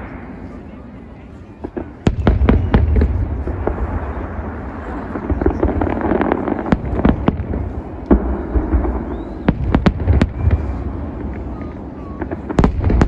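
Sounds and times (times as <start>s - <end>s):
continuous low rumble: 0.0s - 13.0s
fireworks bangs and crackles: 0.0s - 13.0s.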